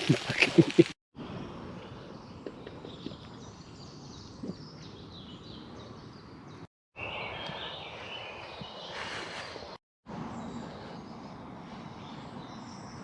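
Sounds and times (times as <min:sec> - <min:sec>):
birds singing and chirping: 0:02.0 - 0:13.0.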